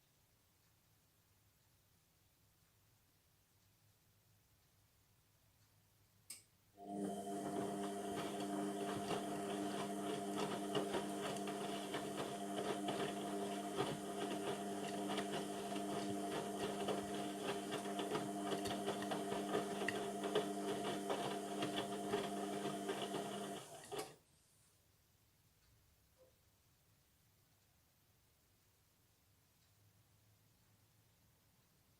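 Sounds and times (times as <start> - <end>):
washing machine running: 6.8 - 24.2.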